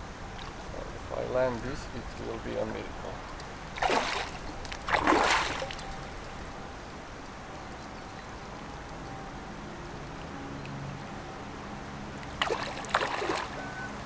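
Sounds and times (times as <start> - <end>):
flowing water hiss: 0.0 - 7.2
splashes in river: 3.4 - 6.6, 12.2 - 14.0.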